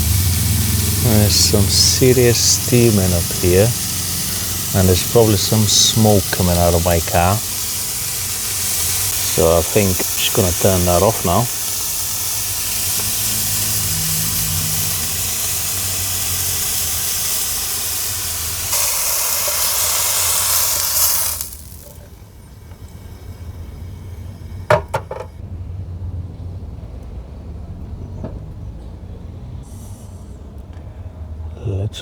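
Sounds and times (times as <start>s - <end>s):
chicken sizzling in a frying pan: 0.0s - 25.2s.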